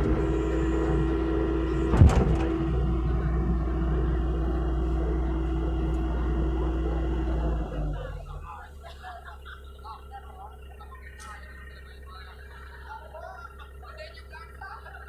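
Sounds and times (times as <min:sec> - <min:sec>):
held tone: 0:00.0 - 0:08.3
excavator diesel engine running: 0:00.0 - 0:15.0
loud knock: 0:01.9 - 0:03.1.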